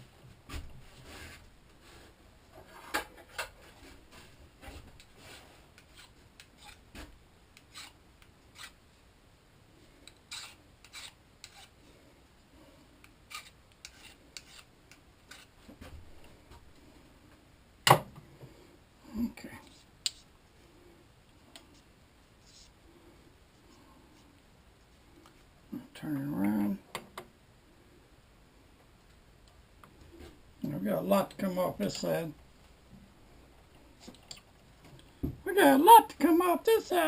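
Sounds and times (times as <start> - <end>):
filing metal scraping: 5.2 - 6.8, 7.6 - 8.8, 10.0 - 11.8, 13.3 - 14.7, 15.3 - 15.6.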